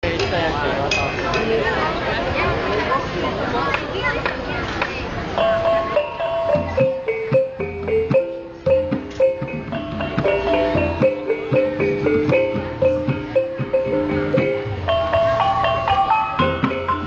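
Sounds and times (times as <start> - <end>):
kettle gongs playing melody: 5.4 - 17.0.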